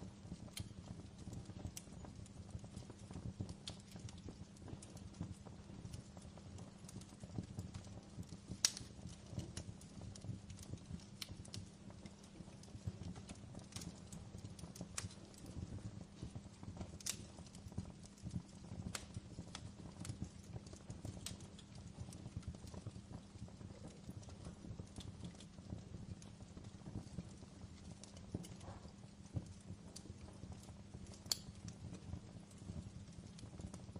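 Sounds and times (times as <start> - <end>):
low rumble of flames: 0.0 - 33.9
wood fire popping and snapping: 0.0 - 33.9.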